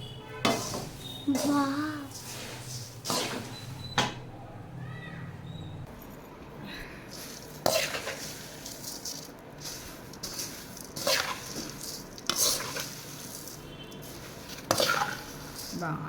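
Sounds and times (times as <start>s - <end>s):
utensil scraping a pan: 0.4s - 3.7s, 7.1s - 16.0s
puffed rice rustling in a pan: 0.5s - 3.7s, 6.8s - 16.0s.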